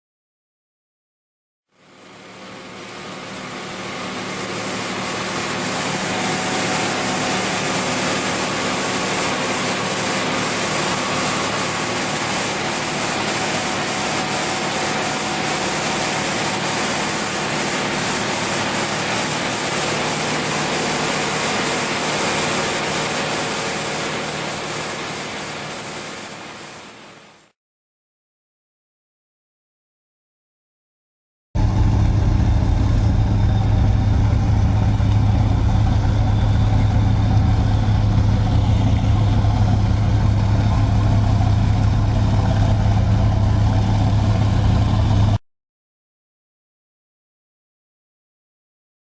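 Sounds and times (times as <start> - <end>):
diesel engines at full throttle: 31.6 - 45.4
low hum: 31.6 - 45.4.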